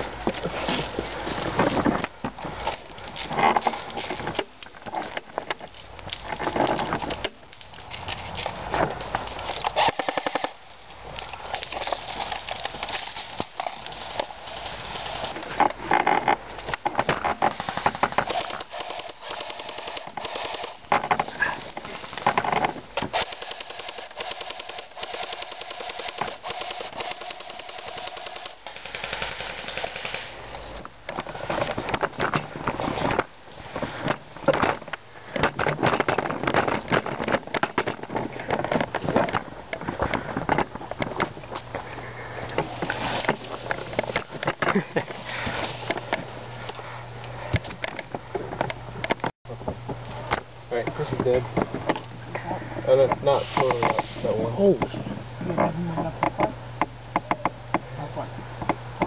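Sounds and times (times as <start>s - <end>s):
airsoft guns firing bursts: 17.5s - 20.8s, 23.1s - 30.4s.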